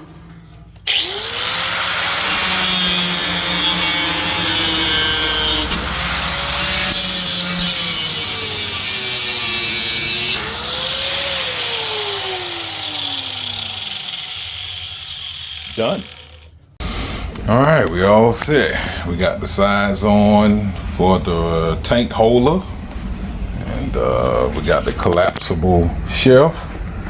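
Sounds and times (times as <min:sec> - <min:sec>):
power cutting tool cutting screws: 0:00.8 - 0:17.2.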